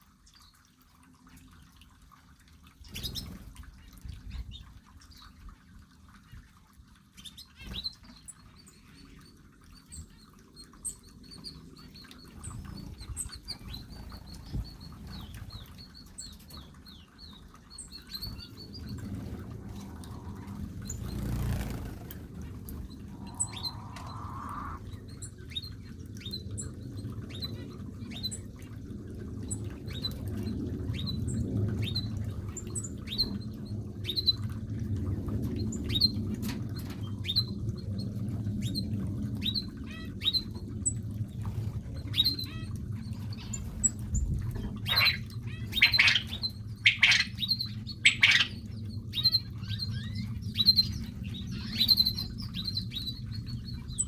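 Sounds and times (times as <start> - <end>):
small birds chirping: 7.2 - 26.6, 43.2 - 54.0
low steady rumble: 11.0 - 54.0.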